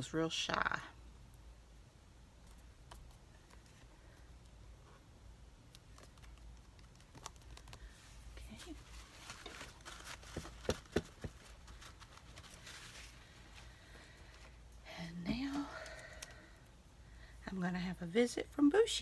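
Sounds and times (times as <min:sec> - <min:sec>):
paper rustling and crinkling: 0:06.0 - 0:14.6.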